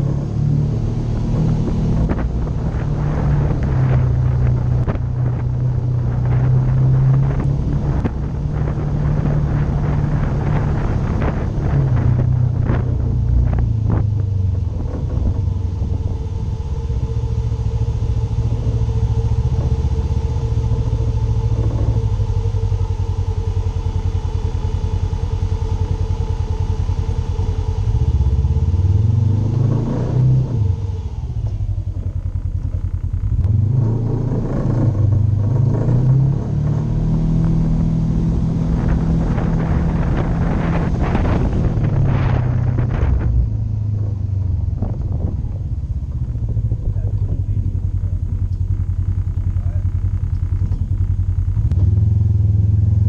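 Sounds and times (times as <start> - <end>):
off-road vehicle engine revving: 0.0 - 53.0.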